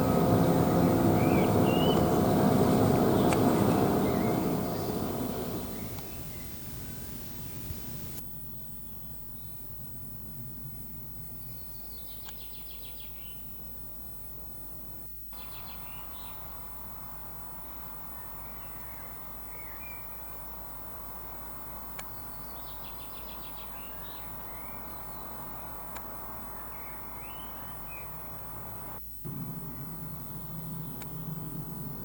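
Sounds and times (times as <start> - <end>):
low hum: 0.0 - 8.2, 28.4 - 32.0
small birds chirping: 0.0 - 8.2, 15.4 - 16.6, 22.0 - 32.0
steady background hiss: 0.0 - 10.2, 13.5 - 32.0.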